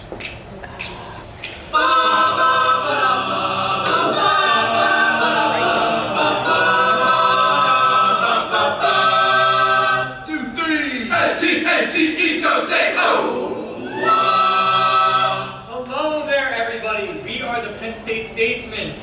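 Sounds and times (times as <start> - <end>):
male a cappella group singing: 0.7 - 15.8.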